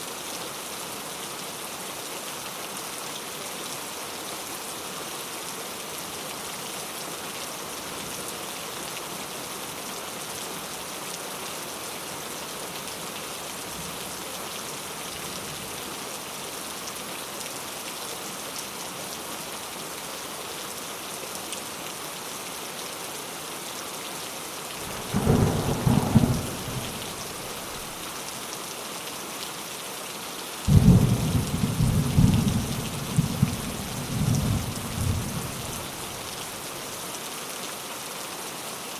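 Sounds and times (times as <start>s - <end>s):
heavy rain falling: 24.5s - 29.6s, 30.4s - 38.9s
thunder rolling: 24.8s - 28.0s.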